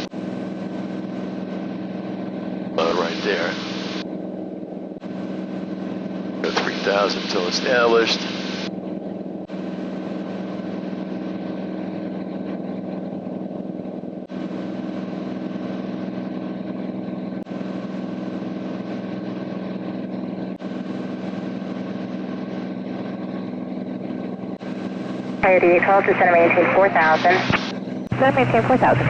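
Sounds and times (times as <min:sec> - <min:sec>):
aircraft engine droning: 0:00.0 - 0:29.0.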